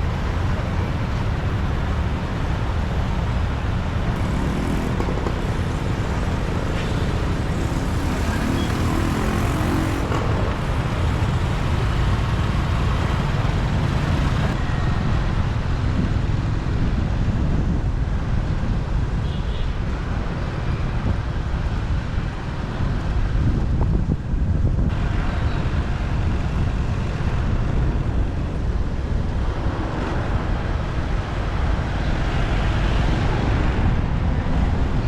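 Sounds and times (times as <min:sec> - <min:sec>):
motorbike engine rumble: 0:00.0 - 0:14.6
city traffic: 0:00.0 - 0:35.0.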